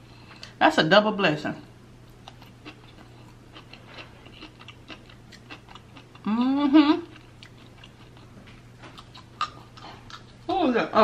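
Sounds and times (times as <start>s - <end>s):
person chewing food: 2.1s - 10.5s
wavering hum of a voice: 6.2s - 7.1s.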